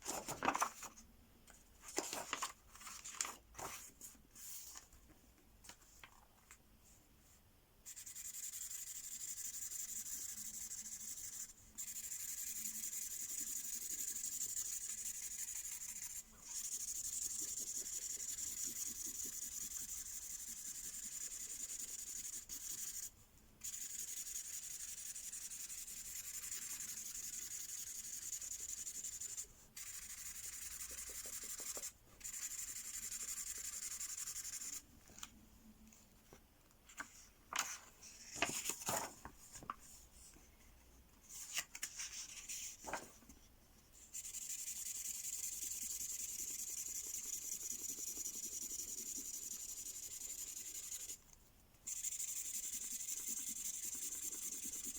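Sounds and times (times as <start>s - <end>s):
pen scribbling on paper: 7.9s - 34.8s, 44.1s - 51.2s, 51.9s - 54.9s.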